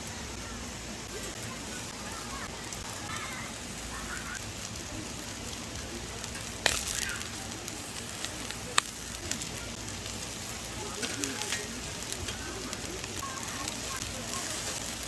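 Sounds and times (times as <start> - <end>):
food sizzling on a grill: 0.0 - 15.0
sharp pops: 6.4 - 7.3.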